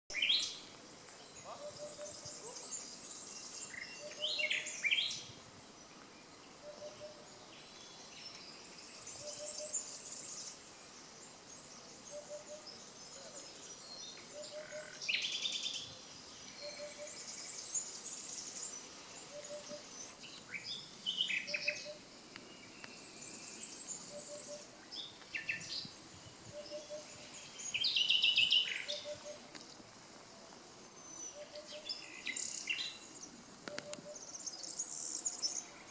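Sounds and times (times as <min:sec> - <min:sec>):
nightingales singing: 0:00.1 - 0:29.8, 0:30.8 - 0:35.9.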